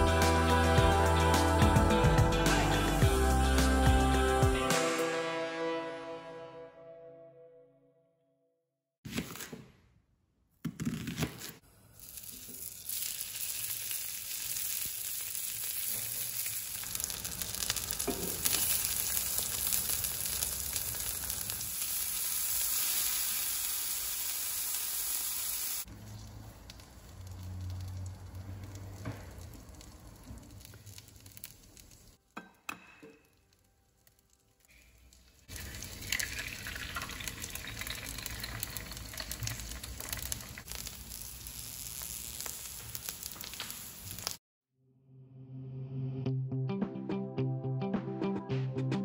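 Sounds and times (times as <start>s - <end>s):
meat and onion sizzling: 11.7s - 44.4s.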